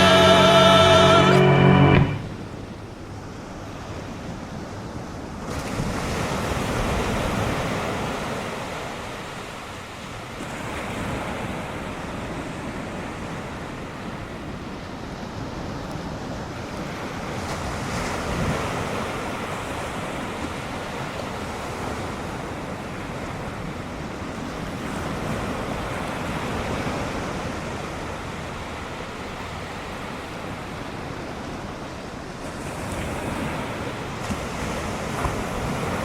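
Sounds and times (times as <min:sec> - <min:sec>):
ocean surf breaking: 0:00.0 - 0:02.8.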